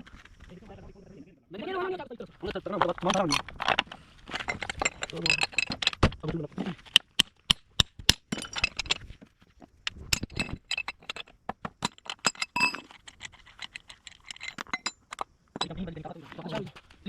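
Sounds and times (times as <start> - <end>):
metal tools clinking: 2.8 - 6.0, 8.3 - 9.1, 9.9 - 15.9.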